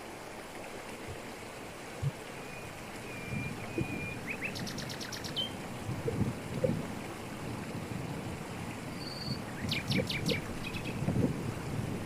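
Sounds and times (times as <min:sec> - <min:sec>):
waterfall splashing over rocks: 0:00.0 - 0:12.0
small bird calling: 0:02.4 - 0:05.6.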